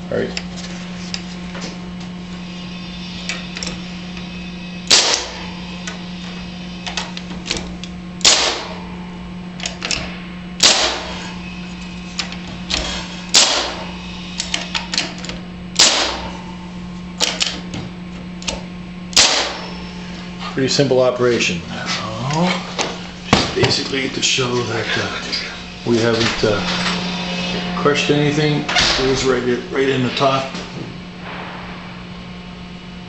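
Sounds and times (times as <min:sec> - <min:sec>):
nail gun firing into wood: 0:04.9 - 0:05.4, 0:08.2 - 0:08.8, 0:10.6 - 0:11.1, 0:13.3 - 0:13.8, 0:15.8 - 0:16.3, 0:19.2 - 0:19.6.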